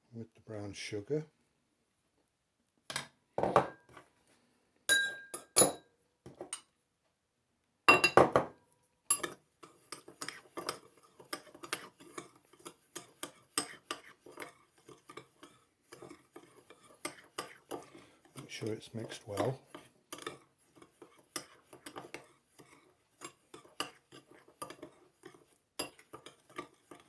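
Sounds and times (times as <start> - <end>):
spoon clinking and scraping in bowl: 4.9 - 5.8, 9.1 - 27.0.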